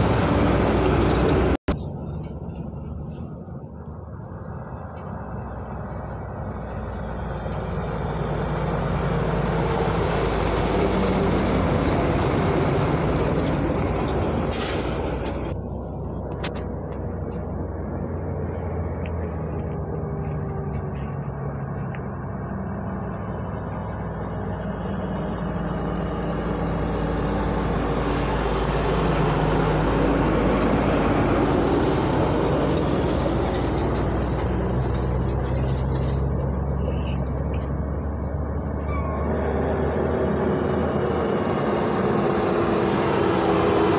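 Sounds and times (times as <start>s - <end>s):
truck diesel engines running: 0.0s - 43.9s
brief high squeaks: 38.8s - 39.4s.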